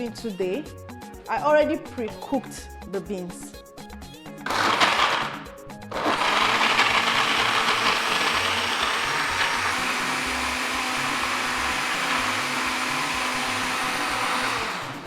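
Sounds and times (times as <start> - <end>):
blender grinding: 4.4 - 15.0.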